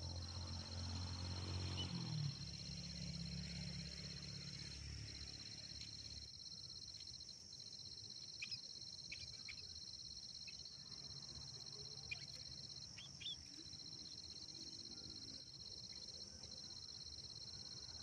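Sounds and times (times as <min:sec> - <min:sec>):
insects chirring: 0:00.0 - 0:18.0
small birds chirping: 0:08.3 - 0:09.8, 0:12.0 - 0:13.6.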